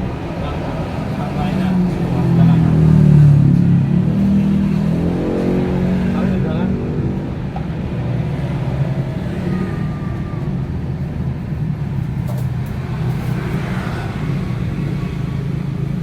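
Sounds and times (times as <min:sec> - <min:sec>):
vehicle engines humming: 0:00.0 - 0:16.0.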